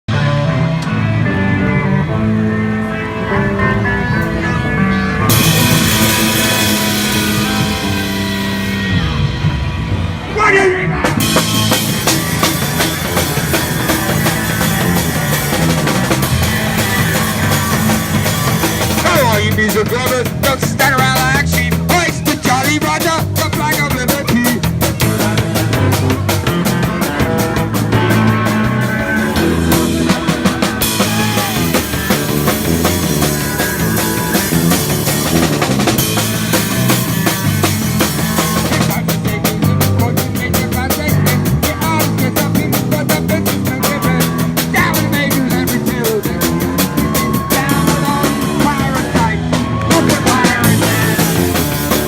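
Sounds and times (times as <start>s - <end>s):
bass guitar: 0.0s - 52.0s
punk rock music: 0.0s - 52.0s
drum kit beat: 5.3s - 52.0s
person singing: 37.0s - 52.0s.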